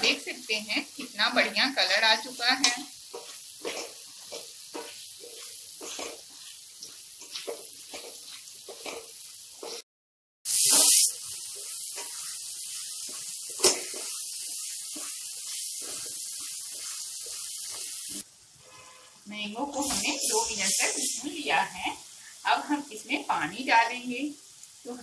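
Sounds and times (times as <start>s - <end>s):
food sizzling in hot oil: 0.0s - 9.8s, 10.4s - 25.0s
spatula scraping a pan: 2.7s - 9.8s, 10.7s - 19.2s.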